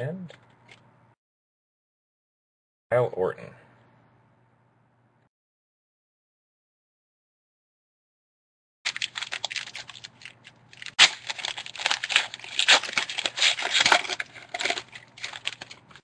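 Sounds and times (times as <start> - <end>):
wrappers crinkling and tearing: 8.9 - 16.0.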